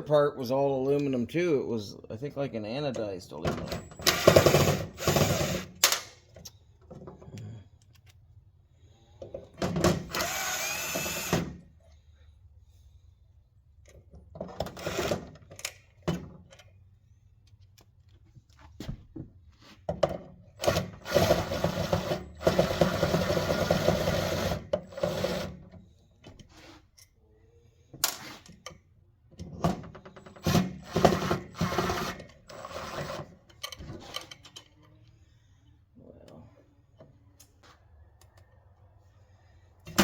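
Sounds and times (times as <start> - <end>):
power drill running: 3.9 - 5.8, 10.0 - 11.6, 20.6 - 25.6, 30.3 - 33.2.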